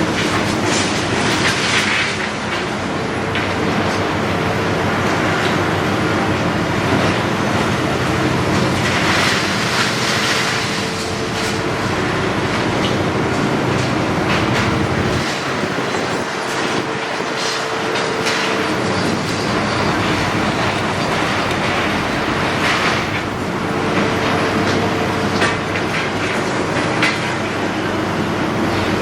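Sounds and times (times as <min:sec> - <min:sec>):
concrete crunching and clattering: 0:00.0 - 0:04.2, 0:12.5 - 0:27.7
diesel engine rumble: 0:00.0 - 0:29.0
hydraulic whine: 0:00.0 - 0:29.0.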